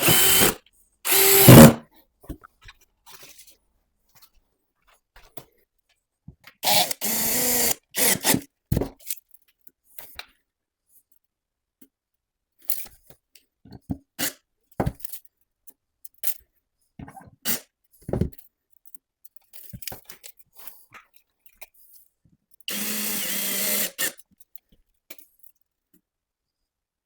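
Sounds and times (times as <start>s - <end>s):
knocks and clicks of tools: 0.0s - 1.8s
power tool whining: 0.0s - 1.8s, 22.7s - 24.1s.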